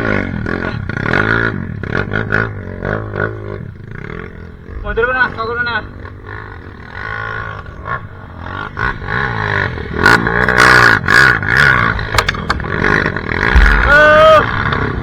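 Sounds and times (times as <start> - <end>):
dirt bike engine revving: 0.0 - 15.0
knocks and clatter: 12.0 - 14.7.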